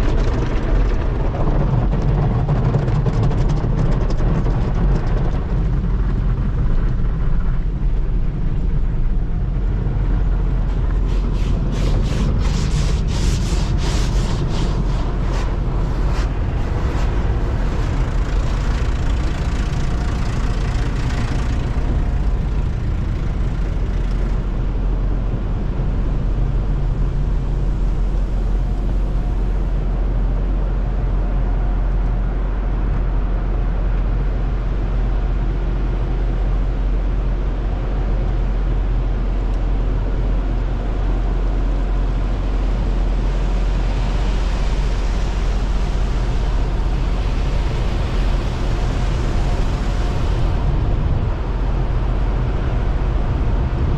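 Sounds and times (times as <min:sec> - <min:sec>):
car engine low rumble: 0:00.0 - 0:53.9
hiss: 0:11.0 - 0:24.5, 0:43.7 - 0:50.8.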